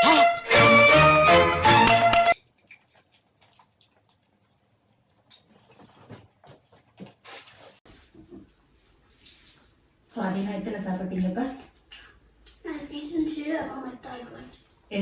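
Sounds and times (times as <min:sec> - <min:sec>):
background music: 0:00.0 - 0:02.4
people eating and handling plates: 0:01.7 - 0:10.5.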